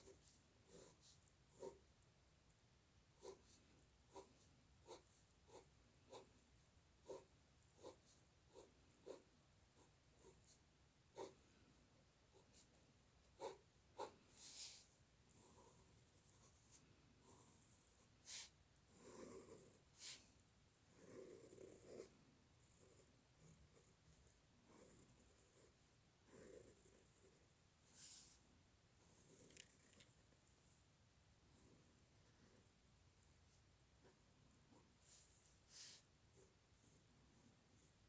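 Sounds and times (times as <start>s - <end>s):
pencil strokes on paper: 0.0s - 1.8s, 3.2s - 20.4s, 26.6s - 29.4s, 33.4s - 38.0s.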